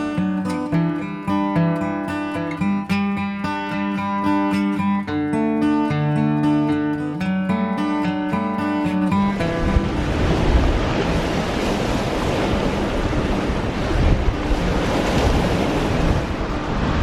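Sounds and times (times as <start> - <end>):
waves washing against rocks: 9.2 - 17.0
wind rumbling on microphone: 9.3 - 17.0.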